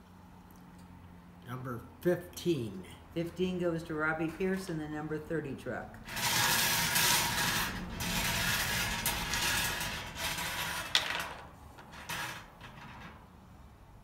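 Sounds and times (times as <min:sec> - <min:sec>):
balls rattling in drawing cage: 0:06.1 - 0:13.4.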